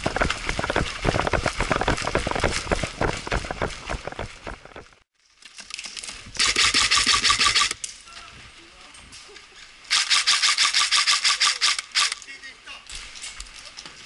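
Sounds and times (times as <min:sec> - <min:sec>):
footsteps of person running: 0:00.0 - 0:05.0
rubbing and rustling on microphone: 0:00.0 - 0:05.1.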